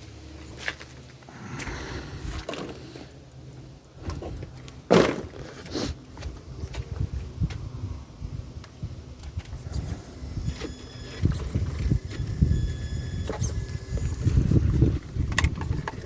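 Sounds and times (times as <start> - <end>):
toy truck electric motor: 9.8 - 16.0.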